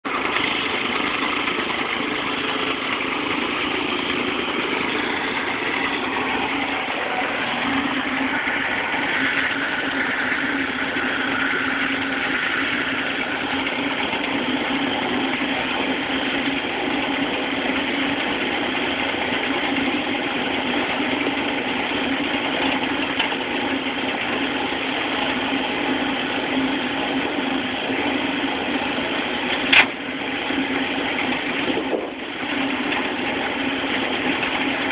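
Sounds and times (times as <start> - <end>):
log splitter mechanical hum: 0.0 - 34.9.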